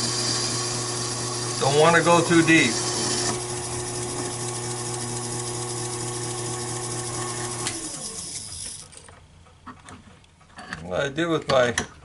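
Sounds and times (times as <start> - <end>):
lathe motor hum: 0.0 - 8.8
lathe tool scraping: 0.0 - 8.9.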